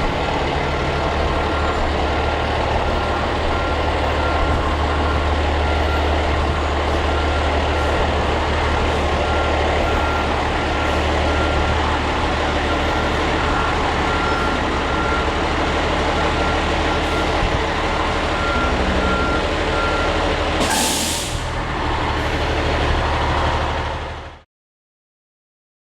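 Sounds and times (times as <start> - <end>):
truck diesel engine running: 0.0 - 24.4
air release hiss: 20.6 - 21.5.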